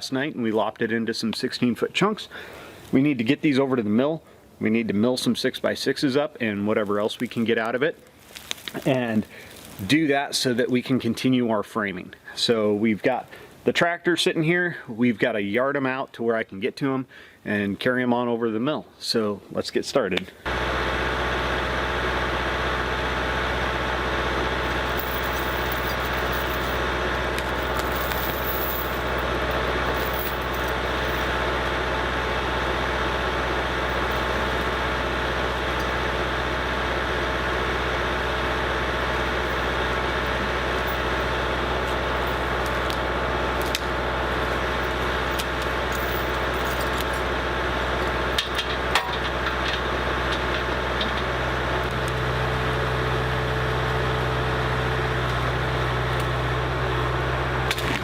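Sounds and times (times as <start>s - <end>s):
tractor diesel engine running: 20.5s - 58.0s.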